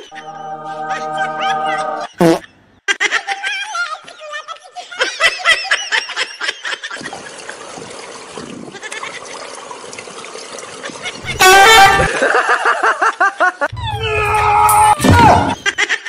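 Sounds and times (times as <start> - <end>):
people laughing: 0.0 - 2.2, 4.6 - 7.4, 11.0 - 13.7.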